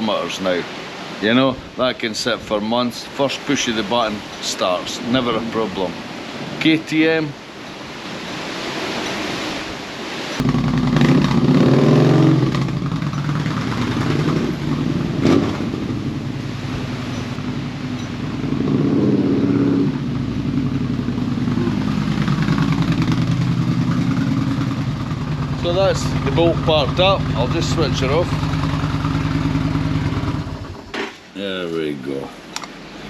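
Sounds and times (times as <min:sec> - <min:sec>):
motorcycle engine starting and revving: 0:10.3 - 0:31.3.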